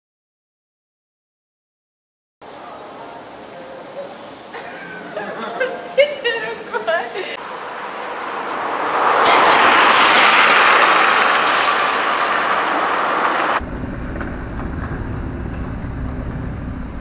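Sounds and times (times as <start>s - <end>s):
city street traffic: 2.4s - 17.0s
vehicle passing: 6.5s - 17.0s
low steady rumble: 13.6s - 17.0s.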